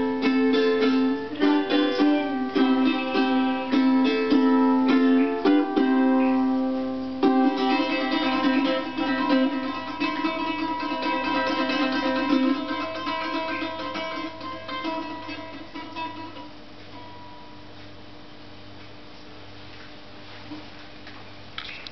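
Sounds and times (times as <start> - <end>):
plucked string instrument: 0.0 - 16.9.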